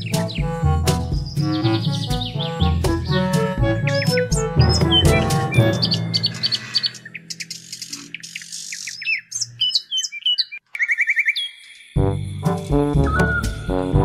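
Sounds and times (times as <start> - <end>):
music: 0.0 - 7.0, 12.0 - 14.0
birds chirping: 0.0 - 12.0.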